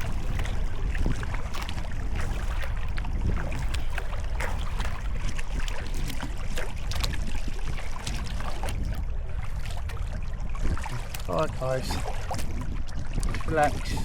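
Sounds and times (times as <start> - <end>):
water dripping off paddle: 0.0 - 7.2, 10.7 - 14.0
paddle splashing in water: 0.0 - 14.0
steady low rumble: 0.0 - 14.0.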